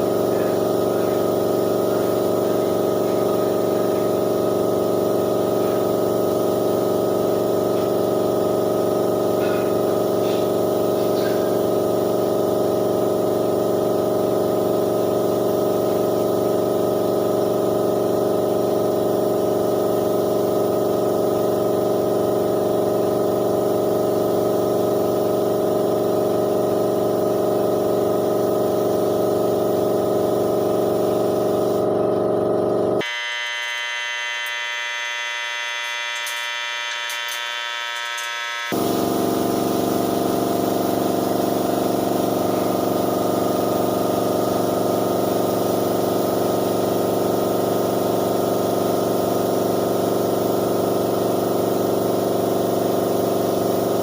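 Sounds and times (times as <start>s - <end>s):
power equipment motor hum: 0.0s - 54.0s.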